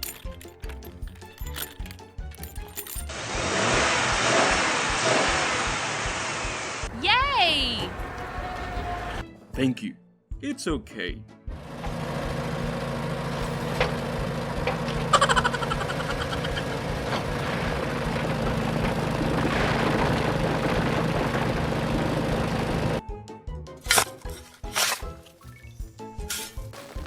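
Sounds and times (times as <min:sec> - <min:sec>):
background music: 0:00.0 - 0:03.2, 0:06.8 - 0:13.6, 0:22.7 - 0:27.0.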